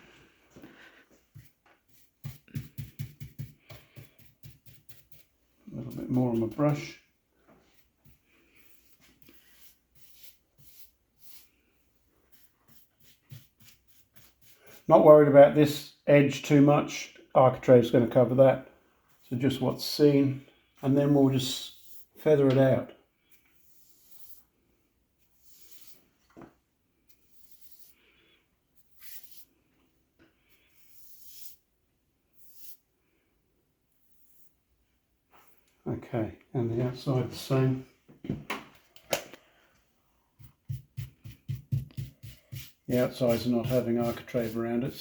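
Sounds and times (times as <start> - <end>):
paintbrush swishing: 1.3 - 7.0, 7.6 - 15.0, 23.3 - 24.5, 25.2 - 26.1, 27.1 - 28.0, 28.8 - 29.5, 30.5 - 31.6, 40.4 - 45.0.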